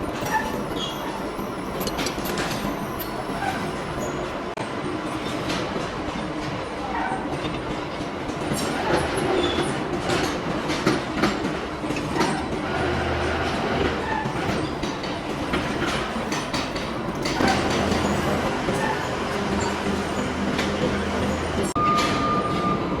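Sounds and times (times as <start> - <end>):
clattering and knocks: 7.3 - 22.2
lathe machine hum: 8.6 - 21.8.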